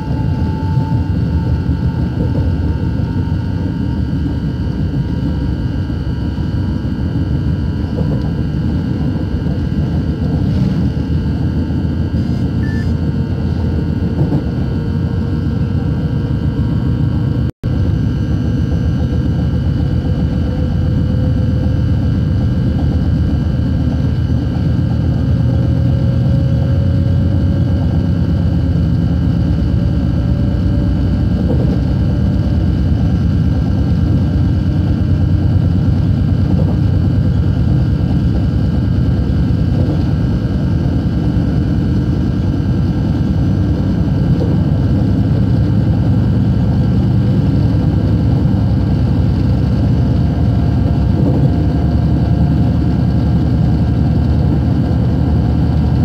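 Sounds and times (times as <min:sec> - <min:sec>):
faint rising whine: 0:00.0 - 0:56.0
train rumble from inside carriage: 0:00.0 - 0:56.0.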